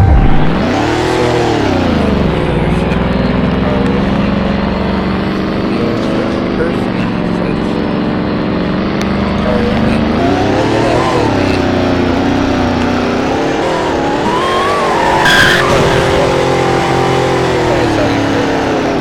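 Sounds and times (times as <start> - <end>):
car engine accelerating: 0.0 - 19.0
high-pitched squeal: 9.5 - 19.0.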